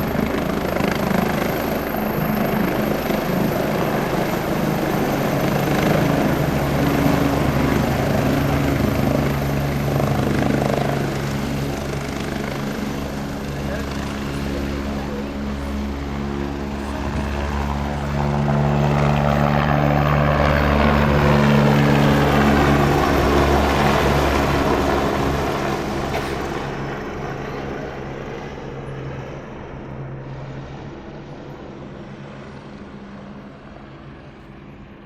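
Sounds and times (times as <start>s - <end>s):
helicopter taking off: 0.0s - 35.0s.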